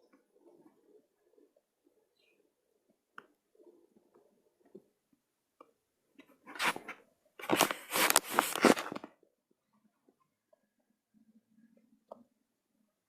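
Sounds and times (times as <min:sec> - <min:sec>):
scratchy rubbing on paper: 0:06.5 - 0:09.0.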